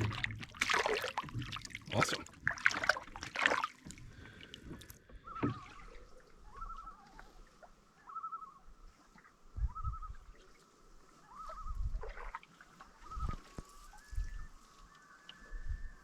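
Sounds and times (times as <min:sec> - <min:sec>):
bird warbling call: 0:05.2 - 0:08.8, 0:09.6 - 0:10.5, 0:11.2 - 0:16.0.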